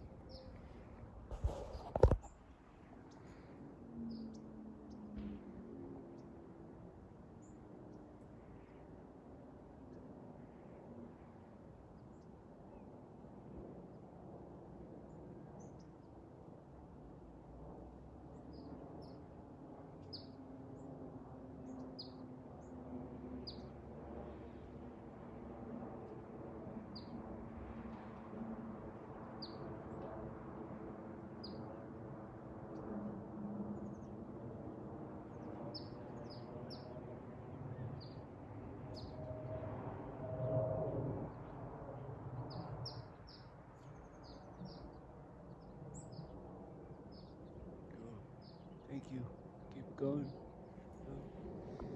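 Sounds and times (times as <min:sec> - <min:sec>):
low outdoor rumble: 0:47.1 - 0:51.9.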